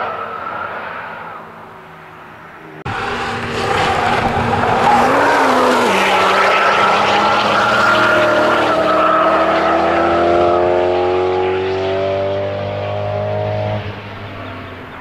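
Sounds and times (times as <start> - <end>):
high tyre squeal: 0.0 - 1.8, 2.9 - 10.2
car engine pulling hard: 2.8 - 15.0.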